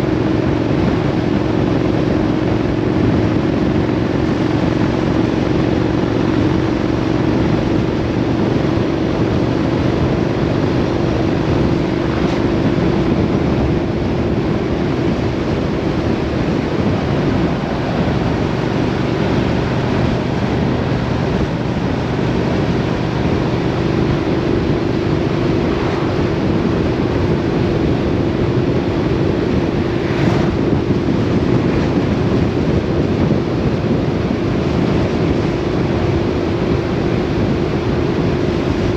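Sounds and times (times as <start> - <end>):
vehicle engine cruising: 0.0 - 38.9
wind noise on microphone: 0.0 - 38.9.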